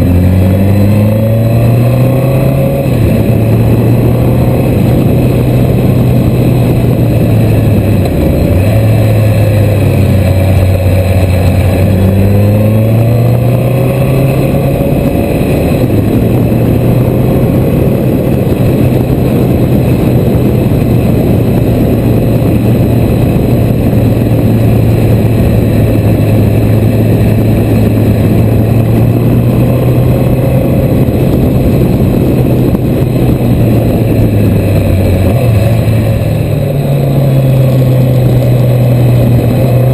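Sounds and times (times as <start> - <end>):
motorcycle engine running: 0.0 - 39.9
rushing noise: 0.0 - 39.9.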